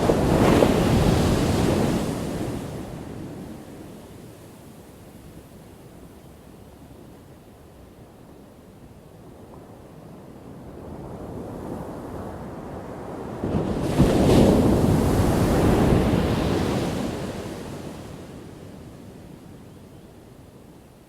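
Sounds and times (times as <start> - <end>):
ocean wave crashing: 0.0 - 2.8.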